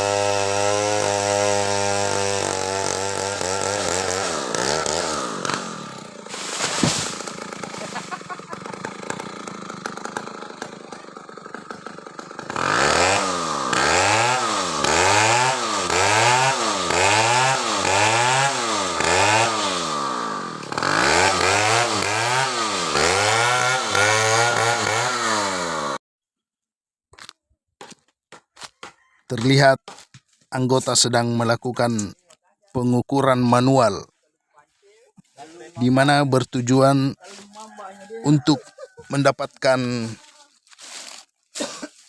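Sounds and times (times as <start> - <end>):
chainsaw revving: 0.0 - 26.0, 31.4 - 32.1, 38.2 - 40.2.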